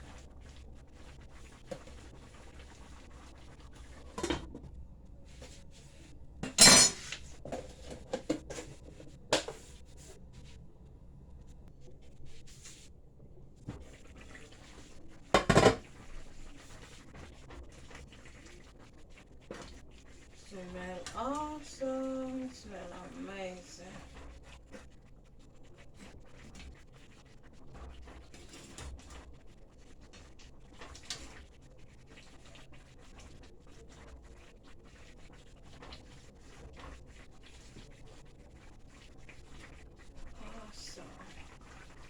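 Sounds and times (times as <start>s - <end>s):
utensils clinking against pot: 6.4s - 8.6s.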